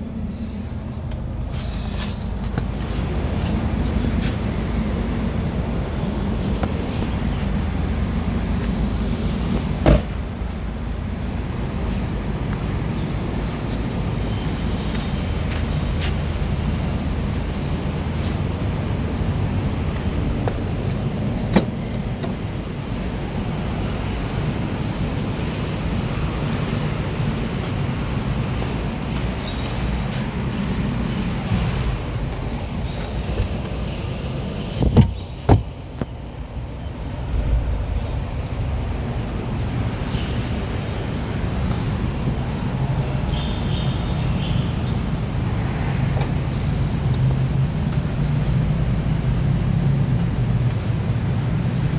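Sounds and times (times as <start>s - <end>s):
car low rumble: 0.0s - 51.9s.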